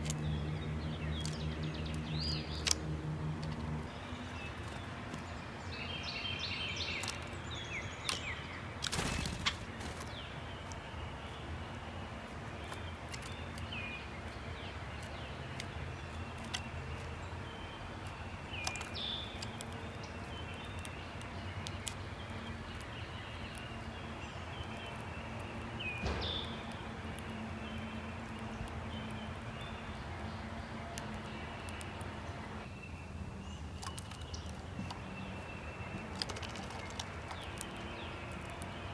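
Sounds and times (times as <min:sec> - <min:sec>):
low background hum: 0:00.0 - 0:38.9
songbird chirps: 0:00.0 - 0:38.9.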